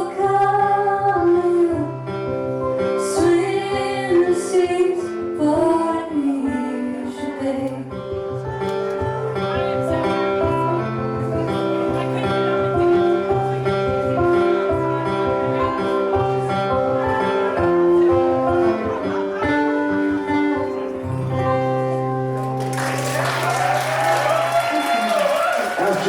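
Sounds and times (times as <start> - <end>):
picked guitar melody: 0.0 - 24.0
audience applause and cheering: 22.4 - 26.0.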